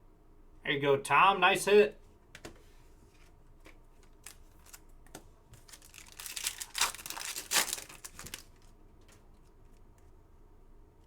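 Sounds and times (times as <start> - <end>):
foil wrapper crinkling and tearing: 4.0 - 5.0, 5.6 - 8.8.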